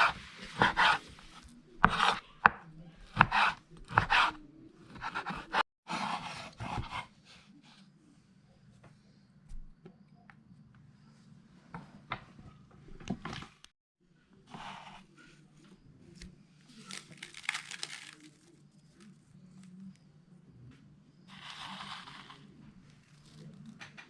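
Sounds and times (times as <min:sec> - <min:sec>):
rustling and crinkling: 0:16.2 - 0:20.0.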